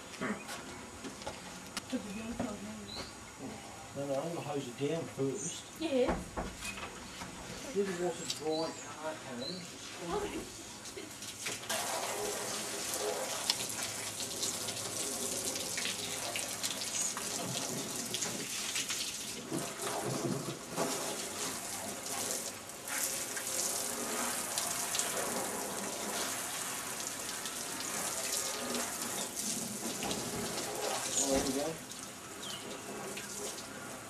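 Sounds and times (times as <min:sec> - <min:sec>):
hose spraying water on car: 0:09.8 - 0:34.0.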